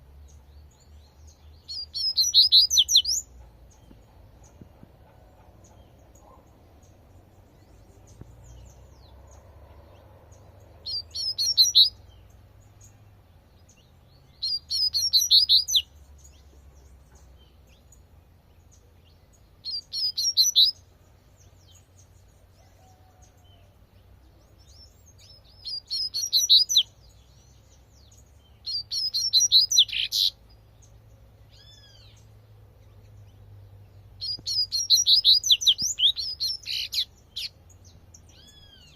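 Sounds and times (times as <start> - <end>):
bird singing rapid high notes: 1.6 - 3.3, 10.8 - 12.2, 14.4 - 15.9, 19.6 - 20.8, 25.3 - 26.9, 28.5 - 30.4, 34.2 - 37.6.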